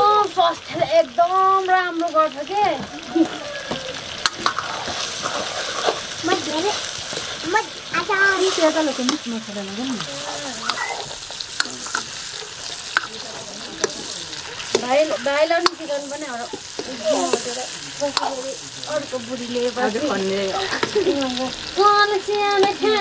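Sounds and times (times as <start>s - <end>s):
curry sizzling in oil: 0.0s - 23.0s.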